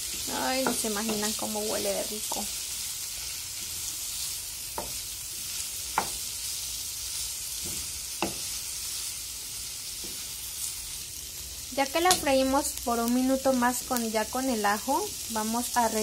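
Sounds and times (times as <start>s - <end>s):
vegetables sizzling in hot oil: 0.0s - 16.0s
wooden spoon knocking on a pan: 0.6s - 1.5s, 4.8s - 5.0s, 5.9s - 6.2s, 7.6s - 8.5s.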